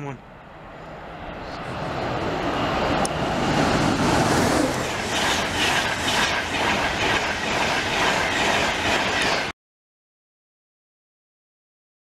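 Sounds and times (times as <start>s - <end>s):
train passing at speed: 0.0s - 9.5s
wheels clattering over rails: 2.0s - 9.5s.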